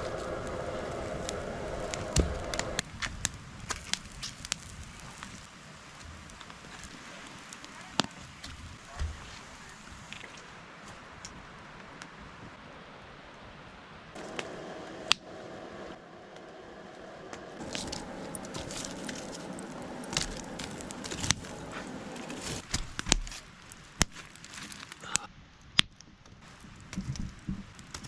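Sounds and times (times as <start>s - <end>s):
food sizzling on fire: 0.0s - 10.3s, 14.2s - 25.2s
campfire crackling and popping: 0.0s - 12.2s, 14.1s - 28.0s.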